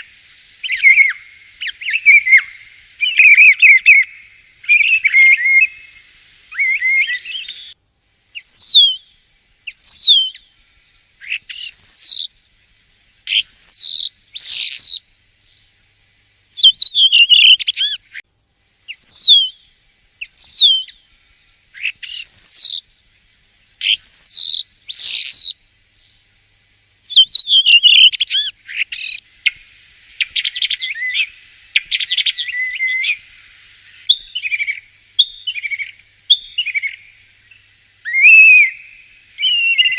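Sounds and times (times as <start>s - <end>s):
starling whistles: 0.0s - 7.8s, 8.4s - 9.1s, 9.7s - 10.4s, 11.2s - 12.3s, 13.3s - 15.0s, 16.6s - 18.0s, 18.9s - 19.6s, 20.2s - 21.0s, 21.8s - 22.8s, 23.8s - 25.6s, 27.1s - 29.6s, 30.2s - 33.2s, 33.8s - 37.1s, 38.0s - 39.9s.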